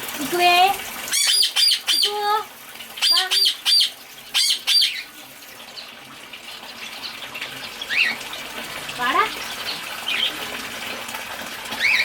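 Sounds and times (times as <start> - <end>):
running water hissing: 0.0 - 12.0
birds squawking and chirping: 1.1 - 2.3, 2.9 - 8.4, 9.4 - 10.5, 11.7 - 12.0.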